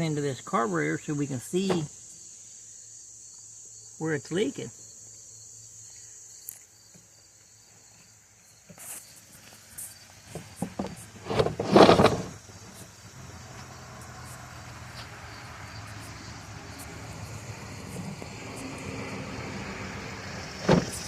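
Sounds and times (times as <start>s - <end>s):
scraping rattle: 9.8s - 12.9s.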